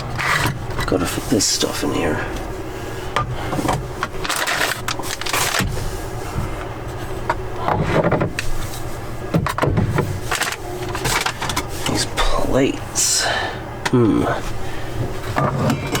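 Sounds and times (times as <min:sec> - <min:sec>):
steady low hum: 0:00.0 - 0:16.0
items knocking and clattering: 0:09.3 - 0:11.7.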